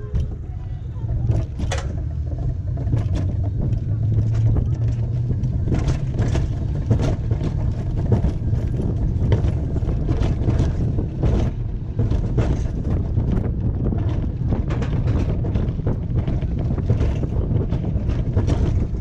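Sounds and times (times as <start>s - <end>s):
clacks and knocks: 0.0s - 19.0s
sled wheels rumbling on steel track: 0.0s - 19.0s.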